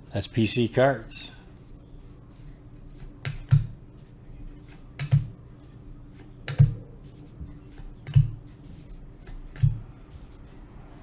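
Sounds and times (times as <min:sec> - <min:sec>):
faint steady hum: 0:00.0 - 0:11.0
cards tapped on a table: 0:03.0 - 0:03.8, 0:04.6 - 0:05.4, 0:06.2 - 0:06.8, 0:07.8 - 0:08.5, 0:09.2 - 0:09.9.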